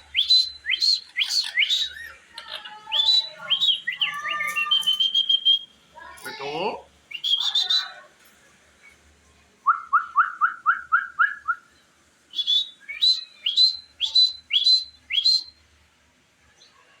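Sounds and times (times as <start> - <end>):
parrot whistling upward notes: 0.1 - 2.2, 2.9 - 5.7, 7.1 - 8.0, 12.3 - 15.6.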